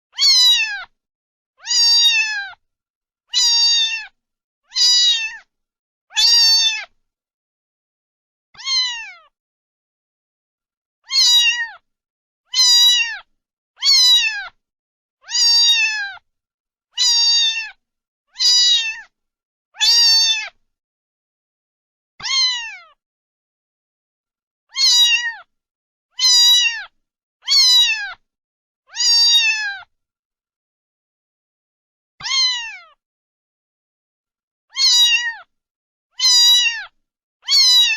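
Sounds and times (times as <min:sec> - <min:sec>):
cat meowing: 0:00.1 - 0:01.0, 0:01.6 - 0:02.6, 0:03.3 - 0:05.5, 0:06.1 - 0:07.0, 0:08.6 - 0:09.4, 0:11.0 - 0:11.8, 0:12.5 - 0:14.6, 0:15.2 - 0:16.2, 0:17.0 - 0:19.1, 0:19.8 - 0:20.6, 0:22.2 - 0:23.0, 0:24.7 - 0:25.5, 0:26.2 - 0:28.2, 0:28.9 - 0:29.9, 0:32.2 - 0:33.0, 0:34.7 - 0:35.5, 0:36.2 - 0:37.9.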